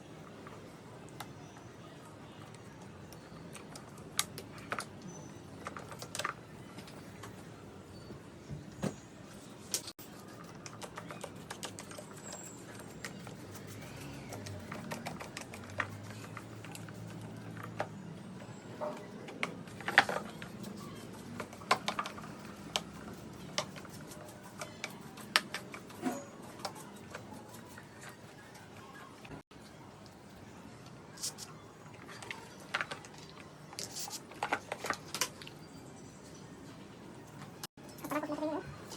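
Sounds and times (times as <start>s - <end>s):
plastic fan parts handled: 9.6s - 28.8s, 31.1s - 35.6s
hand tools clicking and tapping: 9.8s - 18.0s, 18.8s - 27.3s.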